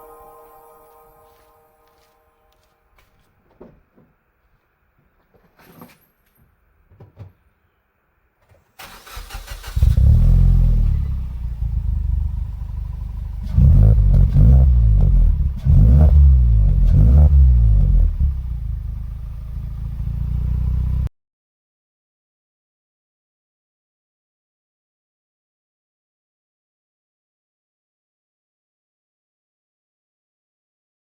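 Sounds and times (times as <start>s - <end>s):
car engine cranking: 8.8s - 18.0s
car engine idling: 8.8s - 21.0s
car engine revving: 8.8s - 21.1s.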